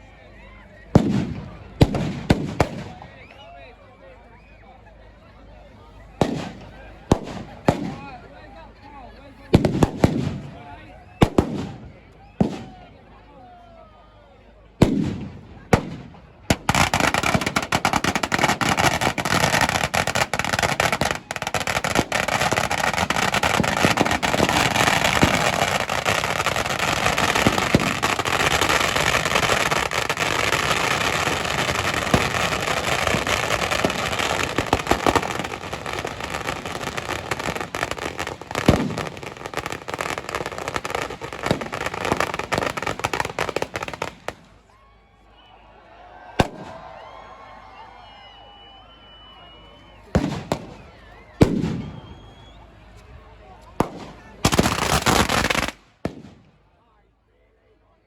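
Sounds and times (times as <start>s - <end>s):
fireworks crackling and popping: 0.9s - 3.2s, 6.2s - 8.3s, 9.4s - 12.9s, 14.8s - 44.7s, 46.4s - 46.9s, 49.1s - 56.6s.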